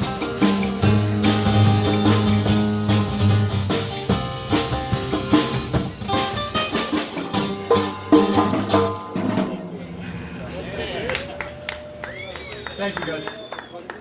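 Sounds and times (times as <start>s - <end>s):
blues guitar: 0.0s - 9.8s
drum kit: 0.0s - 9.9s.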